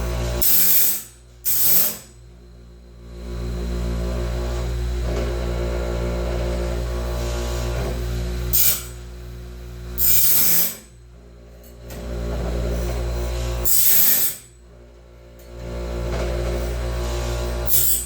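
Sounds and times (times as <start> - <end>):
grinding hiss: 0.4 - 2.1, 16.6 - 18.0.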